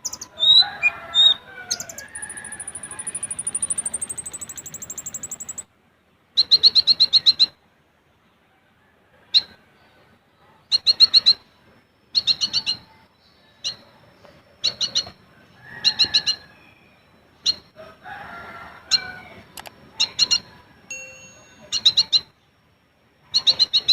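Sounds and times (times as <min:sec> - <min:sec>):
piercing bird call notes: 0:00.0 - 0:05.7
sunbird chattering trills: 0:00.0 - 0:05.7, 0:12.1 - 0:12.9, 0:18.9 - 0:20.6, 0:21.4 - 0:22.4, 0:23.3 - 0:23.9.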